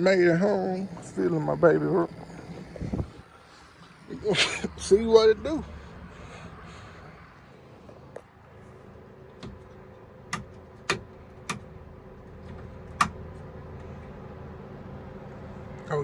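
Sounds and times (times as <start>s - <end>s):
faint steady hum: 0.0s - 16.0s
sharp clicks and knocks: 9.3s - 11.7s, 12.3s - 13.2s.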